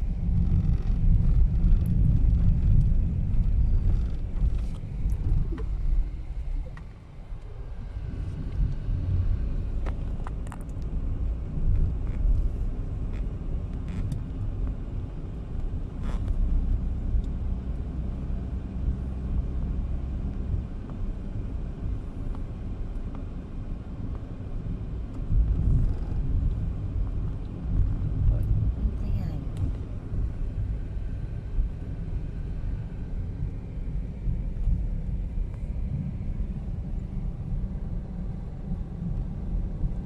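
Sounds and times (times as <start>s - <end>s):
motor vehicle driving rumble: 0.0s - 40.0s.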